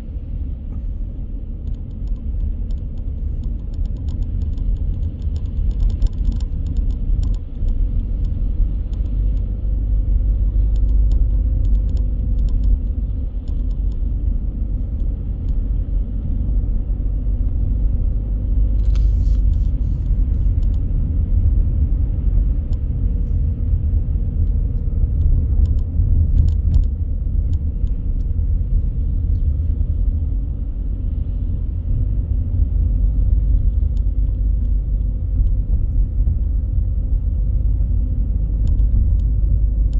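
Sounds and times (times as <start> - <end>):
road and tyre rumble: 0.0 - 39.9
light clicks: 10.4 - 14.2, 38.6 - 39.9.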